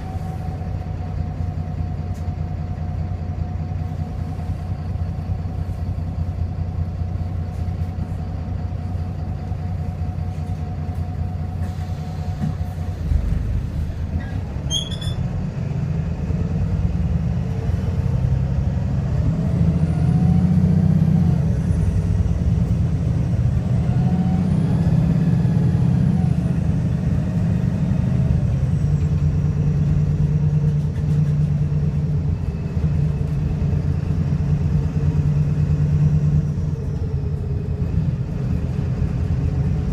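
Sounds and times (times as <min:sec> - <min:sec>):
misfiring bus engine: 0:00.0 - 0:39.9.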